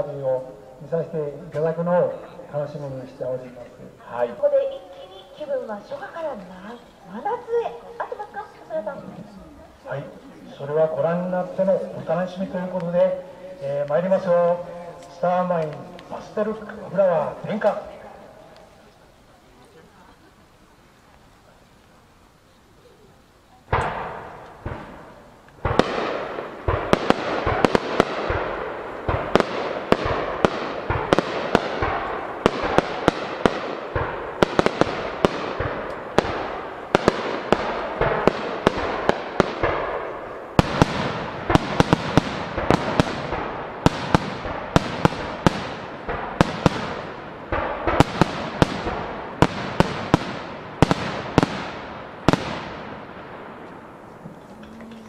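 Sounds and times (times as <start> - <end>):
rumble of echoing bursts: 0.0 - 19.4
fireworks bangs: 0.0 - 22.2, 23.1 - 55.0.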